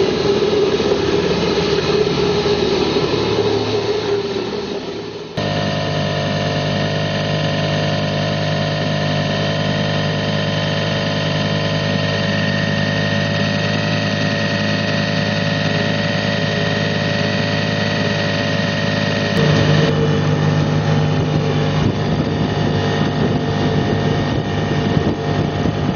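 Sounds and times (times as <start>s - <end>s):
outboard motor running: 0.0s - 25.9s.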